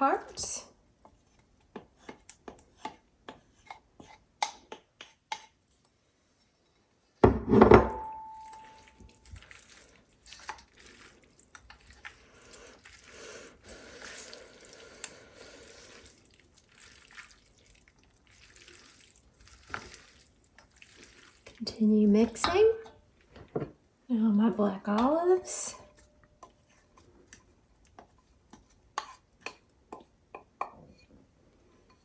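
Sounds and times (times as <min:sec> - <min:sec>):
pasta being stirred and tossed: 0:08.5 - 0:22.4, 0:25.0 - 0:32.0.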